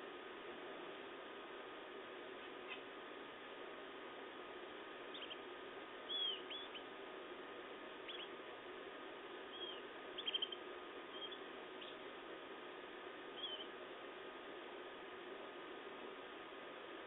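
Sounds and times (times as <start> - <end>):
steady background hum: 0.0 - 17.0
canaries chirping: 5.1 - 5.5, 6.1 - 6.9, 8.0 - 8.4, 9.5 - 12.0, 13.4 - 13.7.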